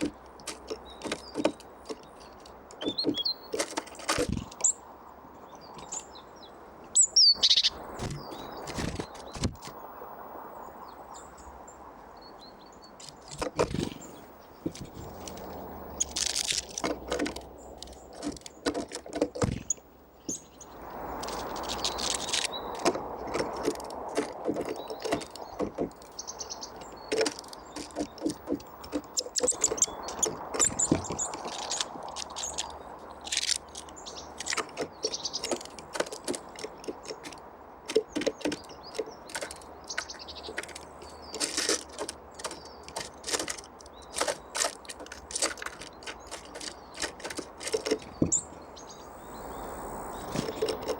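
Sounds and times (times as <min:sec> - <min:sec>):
songbirds chirping: 0:00.0 - 0:50.9
steady background hiss: 0:48.2 - 0:50.9.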